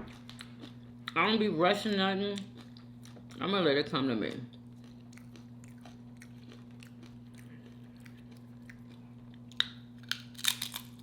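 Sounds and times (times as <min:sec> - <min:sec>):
low electrical hum: 0:00.0 - 0:11.0
chewing food: 0:02.3 - 0:03.4, 0:04.3 - 0:11.0.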